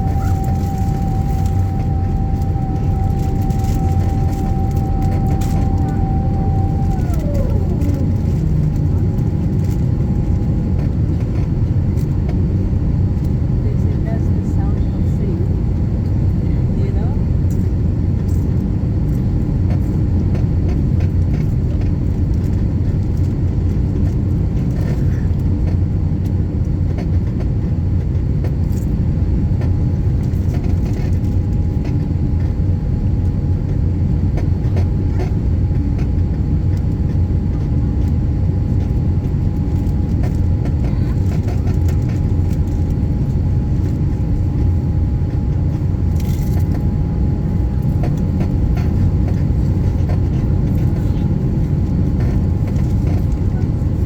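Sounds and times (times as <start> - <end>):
faint whine: 0.0 - 17.7, 29.6 - 54.0
aircraft cabin rumble: 0.0 - 54.0.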